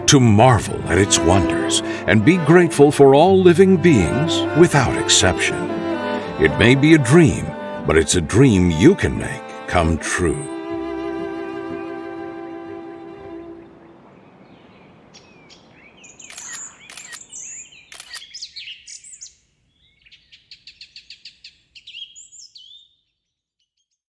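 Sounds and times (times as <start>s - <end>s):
background music: 0.0s - 13.7s
small birds chirping: 14.2s - 24.0s
bird trill: 15.1s - 23.1s.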